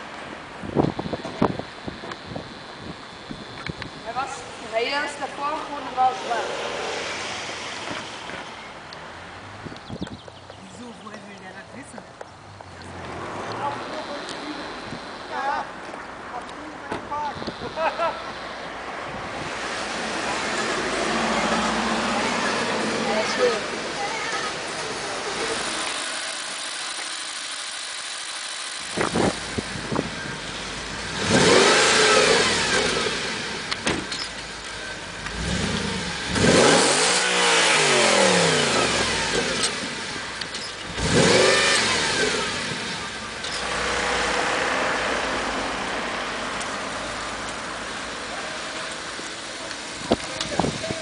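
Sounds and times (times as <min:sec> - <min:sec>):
car engine revving: 0:04.4 - 0:09.4, 0:17.5 - 0:51.0.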